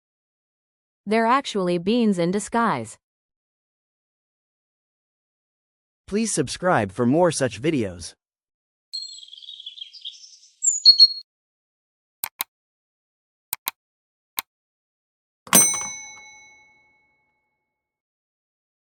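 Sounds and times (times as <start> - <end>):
high chirps: 9.0 - 11.2
mouse button clicks: 12.2 - 12.5
bright bell ding: 15.5 - 16.9.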